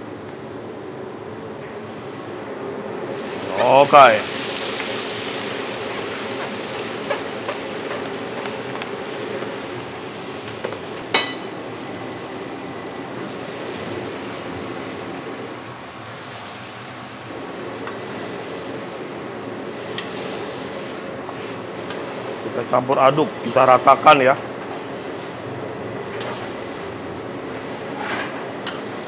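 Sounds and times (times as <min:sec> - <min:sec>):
paste sizzling in hot oil: 0:03.0 - 0:09.8
sharp metallic clang: 0:11.1 - 0:11.6.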